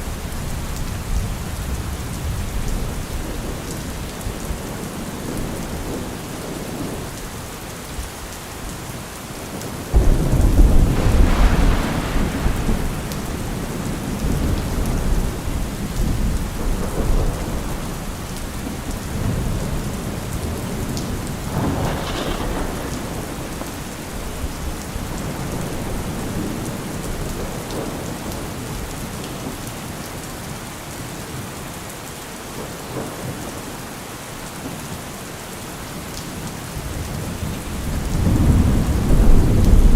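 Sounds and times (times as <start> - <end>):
steady rain: 0.0 - 39.9
thunder rumbling: 9.9 - 28.9, 36.8 - 39.9.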